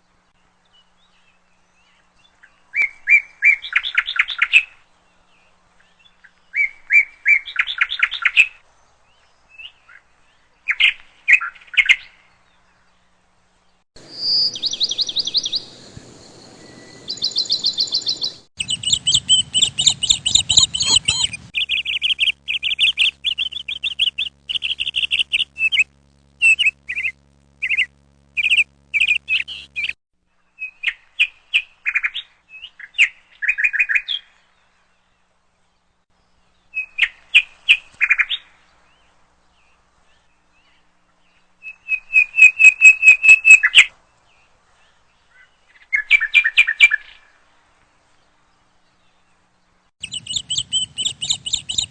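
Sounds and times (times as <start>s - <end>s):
high-pitched animal chirps: 17.3s - 30.0s, 50.0s - 51.9s.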